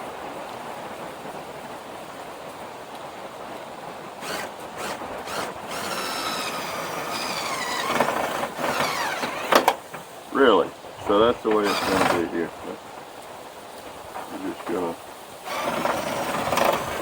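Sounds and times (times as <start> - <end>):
small motor whine: 4.2 - 9.8, 11.6 - 12.2, 15.4 - 17.0.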